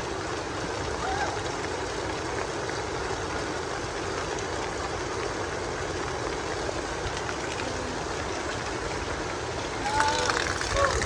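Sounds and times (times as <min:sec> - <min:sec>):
heavy rain falling: 0:09.8 - 0:11.0.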